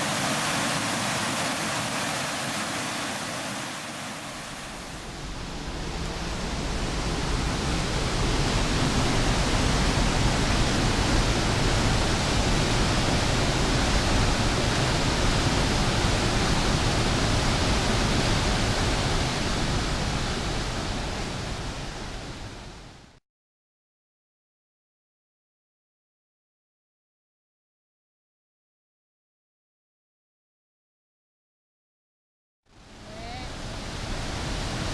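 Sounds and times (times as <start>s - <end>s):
waterfall rushing: 0.0s - 22.4s, 32.8s - 34.9s.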